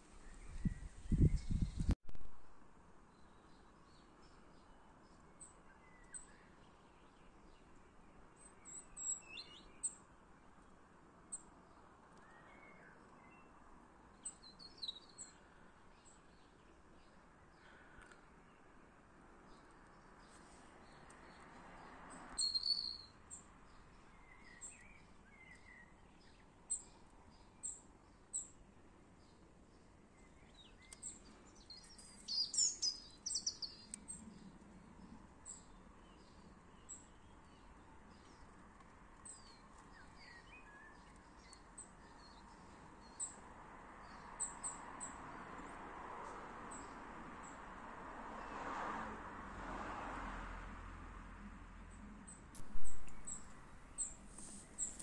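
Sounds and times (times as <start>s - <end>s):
birds chirping and singing: 31.7s - 33.9s
soft rushing sound: 52.6s - 55.0s.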